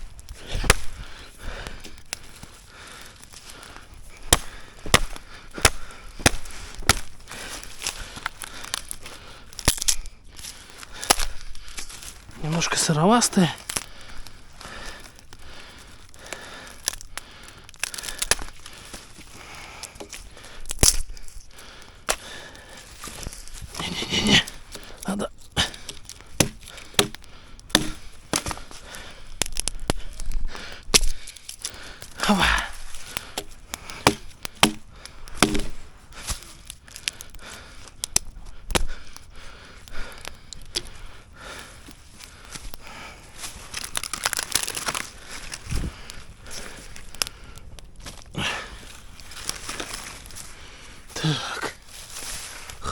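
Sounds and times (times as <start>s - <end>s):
firewood crackling: 0.0s - 52.9s.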